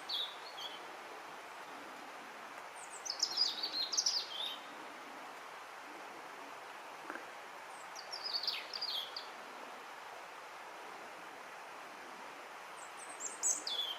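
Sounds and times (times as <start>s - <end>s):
robin singing: 0.0s - 0.8s, 2.8s - 4.8s, 7.7s - 9.3s, 12.8s - 13.9s
outdoor background hiss: 0.0s - 13.9s.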